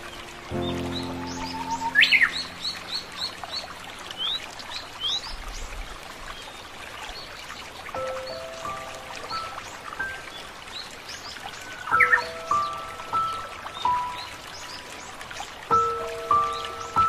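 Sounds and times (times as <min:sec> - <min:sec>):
background hiss: 0:00.0 - 0:05.8
birds singing: 0:00.0 - 0:17.0.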